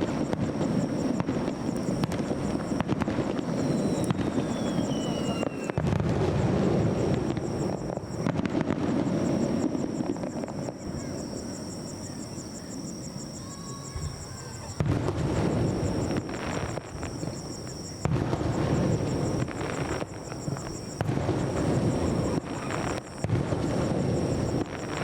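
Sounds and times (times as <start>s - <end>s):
fireworks bursting: 0.0s - 25.0s
sharp fireworks cracks: 0.0s - 25.0s
whistle falling in pitch: 3.6s - 5.8s.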